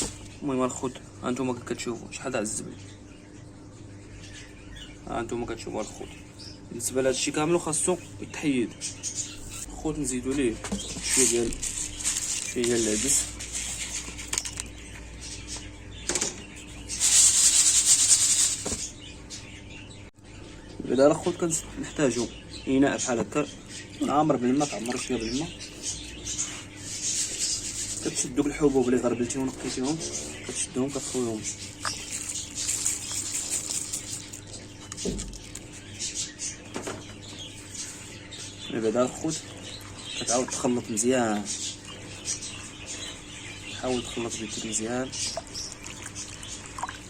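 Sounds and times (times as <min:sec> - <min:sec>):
bird chirps: 0:02.6 - 0:47.0
lentils pouring rattling: 0:11.1 - 0:13.4, 0:17.0 - 0:18.7, 0:32.0 - 0:34.4.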